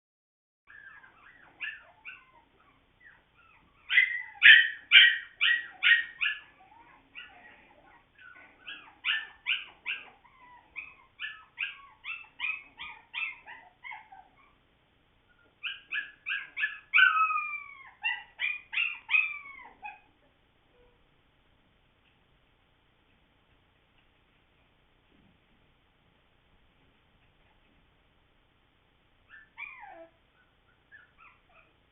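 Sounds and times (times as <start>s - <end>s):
puppies yipping and whining: 0.7s - 14.6s, 15.2s - 21.0s, 29.2s - 31.9s.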